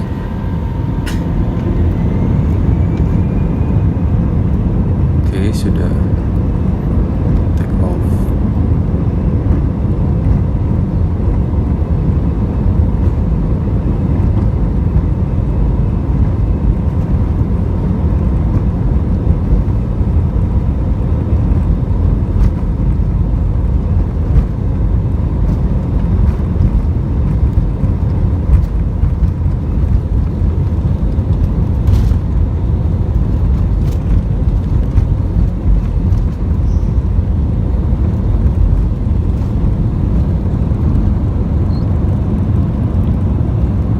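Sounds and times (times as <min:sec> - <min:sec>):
rushing air: 0:00.0 - 0:07.4
airplane engines roaring in cabin: 0:00.0 - 0:43.9.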